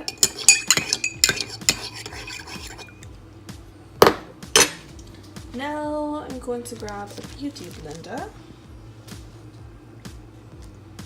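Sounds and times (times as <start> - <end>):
utensil clinking against cup: 0.0 - 3.0.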